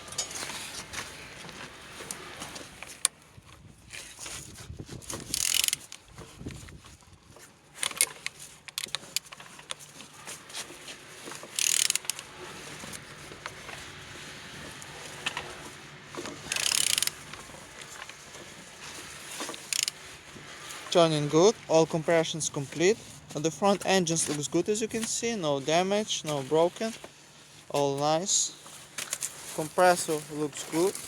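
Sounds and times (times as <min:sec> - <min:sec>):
rapid ratchet clicking: 0:05.2 - 0:06.0, 0:11.4 - 0:12.3, 0:16.4 - 0:18.2, 0:19.4 - 0:20.1
engine crank and tool knocks: 0:16.1 - 0:18.6.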